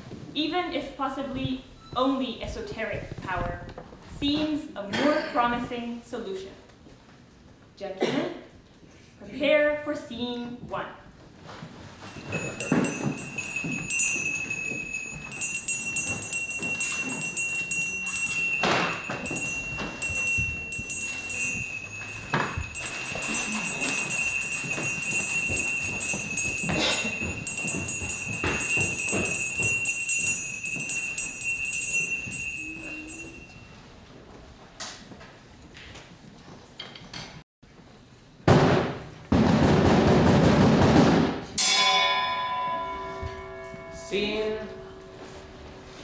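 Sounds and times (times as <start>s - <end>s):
small bells jingling: 11.7s - 33.9s.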